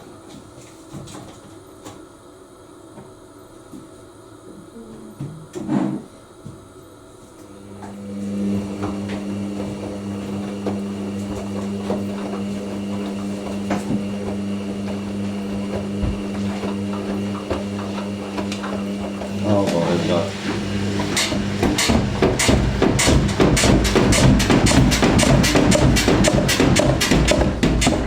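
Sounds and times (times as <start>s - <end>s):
drain pump humming: 7.4s - 28.0s
washing machine thump: 8.6s - 28.0s
drum knocking: 8.8s - 28.0s.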